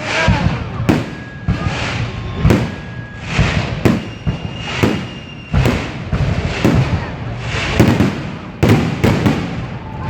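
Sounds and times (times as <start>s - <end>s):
firework shells bursting: 0.0s - 10.0s
fireworks crackling: 0.0s - 10.0s.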